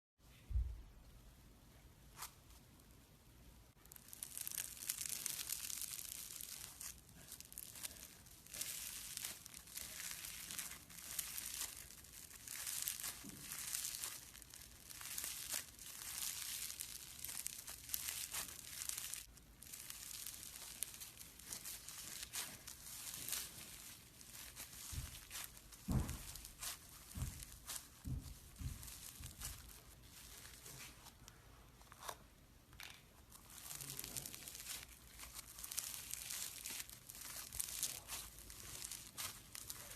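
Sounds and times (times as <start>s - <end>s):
slime crackling when squeezed: 3.8s - 30.9s, 33.3s - 39.9s.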